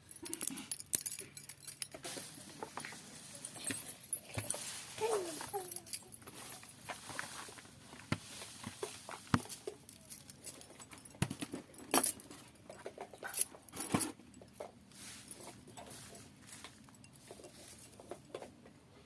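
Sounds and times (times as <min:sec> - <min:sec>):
rustling leafy greens: 0:00.1 - 0:10.5, 0:14.8 - 0:18.1.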